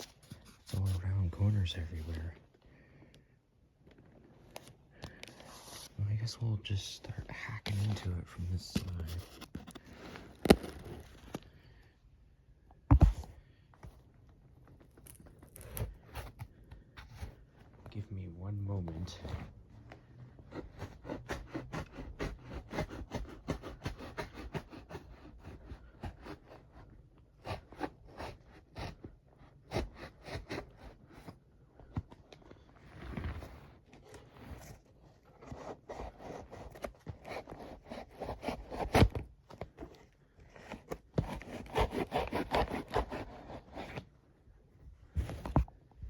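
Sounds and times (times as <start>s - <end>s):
knife sawing through cardboard: 20.5s - 31.4s, 32.9s - 44.0s.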